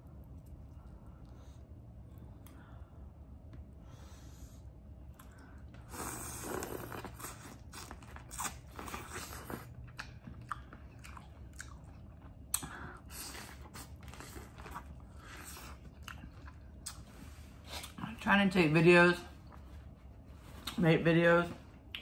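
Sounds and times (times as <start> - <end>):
chewing with sharp clicks: 6.5 - 17.0.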